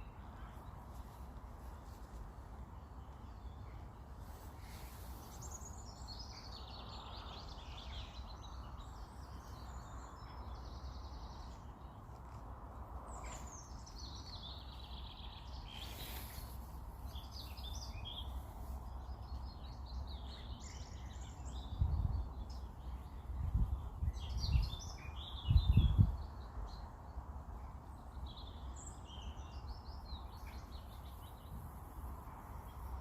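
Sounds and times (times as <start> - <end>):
songbirds singing: 0.0 - 33.0.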